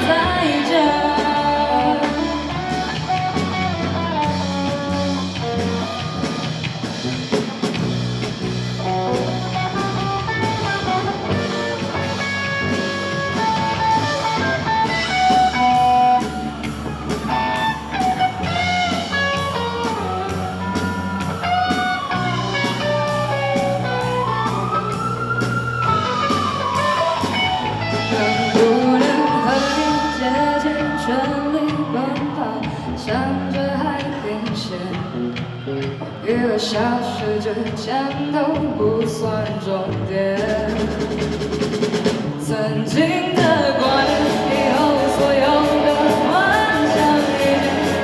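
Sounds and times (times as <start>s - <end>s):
lead guitar solo: 0.0s - 32.9s, 43.6s - 48.0s
rock band playing: 0.0s - 36.3s, 39.5s - 42.5s, 43.4s - 48.0s.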